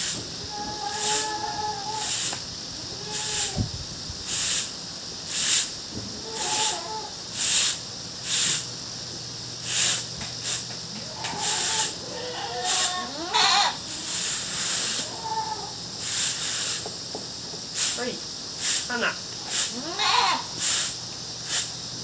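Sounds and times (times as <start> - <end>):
goats bleating: 11.2 - 13.8, 19.8 - 20.5.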